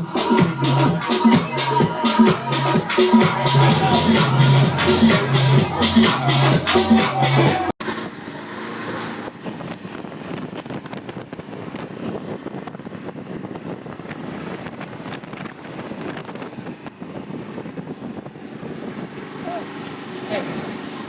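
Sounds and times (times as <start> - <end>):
boat engine running: 0.0 - 21.0
wind buffeting microphone: 9.1 - 21.0.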